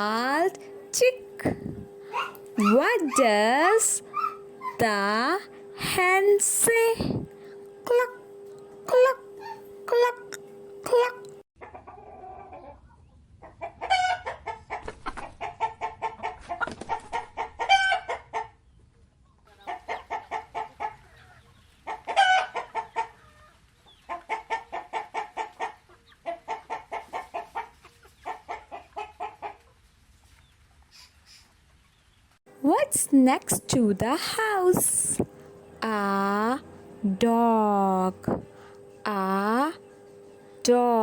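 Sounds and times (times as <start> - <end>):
hen squawks: 2.1 - 3.2, 4.0 - 4.8
hen clucking: 2.1 - 5.4, 19.5 - 29.6.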